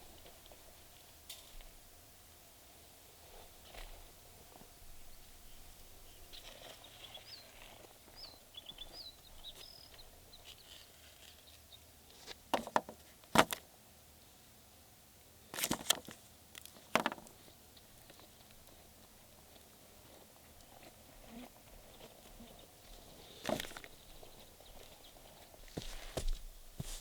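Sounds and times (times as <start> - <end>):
bird chirping: 6.2 - 11.8.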